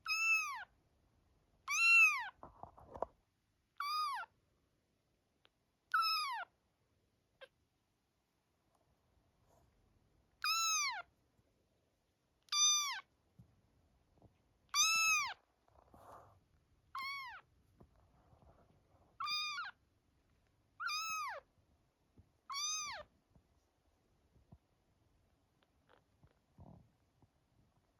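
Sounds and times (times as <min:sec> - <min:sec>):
kitten mewing: 0:22.5 - 0:23.0.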